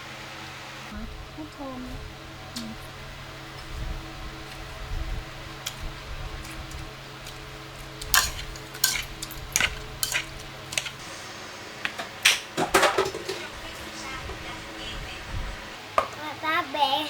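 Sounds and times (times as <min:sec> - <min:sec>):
low steady hum: 0:00.0 - 0:16.0
metal utensils clinking on dishes: 0:07.2 - 0:11.0, 0:12.3 - 0:13.6.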